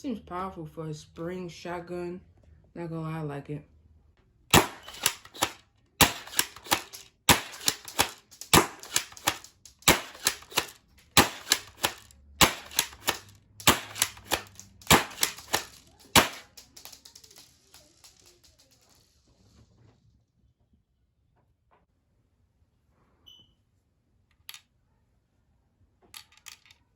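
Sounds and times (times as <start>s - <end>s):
airsoft shotgun firing crack: 4.5s - 17.5s
plastic clacks of pump action: 4.6s - 18.6s.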